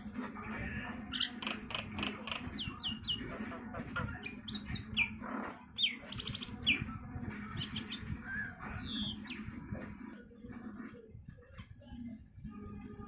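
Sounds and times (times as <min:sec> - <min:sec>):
bird clicks: 0:01.3 - 0:02.7.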